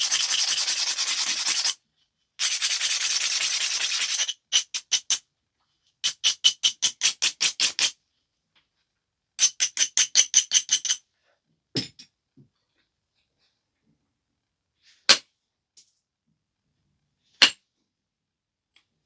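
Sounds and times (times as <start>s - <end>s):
stone scraping strokes: 0.0s - 1.8s, 2.4s - 4.3s.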